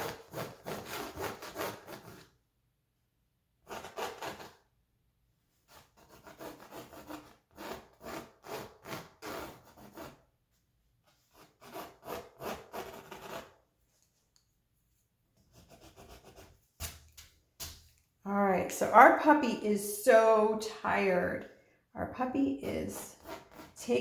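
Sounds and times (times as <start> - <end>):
pencil scratching on canvas: 0.0 - 2.4, 3.6 - 4.7, 5.6 - 10.3, 11.1 - 13.6, 15.4 - 17.0, 22.2 - 24.0.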